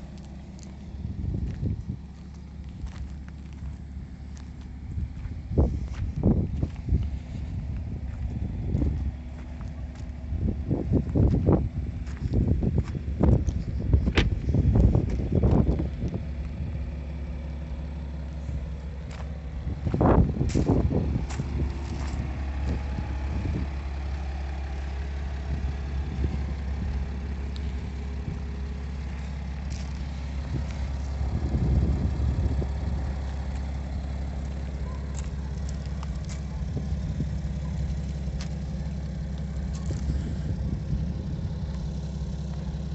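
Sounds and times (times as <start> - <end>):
engine idling: 0.0 - 42.9
low engine rumbles: 0.0 - 42.9.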